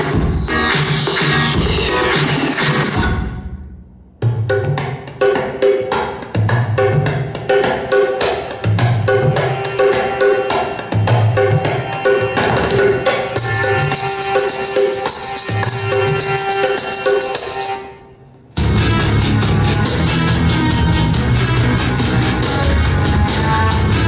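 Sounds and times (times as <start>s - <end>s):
subwoofer bass beats: 0.0s - 4.0s, 18.6s - 24.0s
percussion-driven song: 0.0s - 18.0s, 18.6s - 24.0s.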